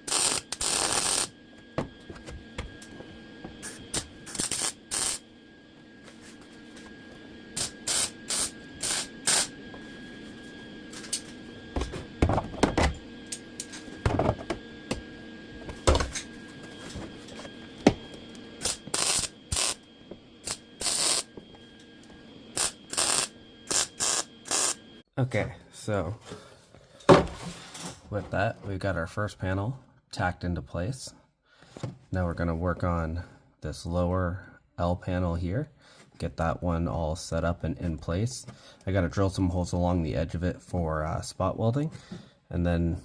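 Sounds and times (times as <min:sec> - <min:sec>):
welder tack welding bursts: 0:00.0 - 0:01.3, 0:03.6 - 0:05.2, 0:07.6 - 0:09.5, 0:18.6 - 0:19.8, 0:20.4 - 0:21.3, 0:22.6 - 0:24.8.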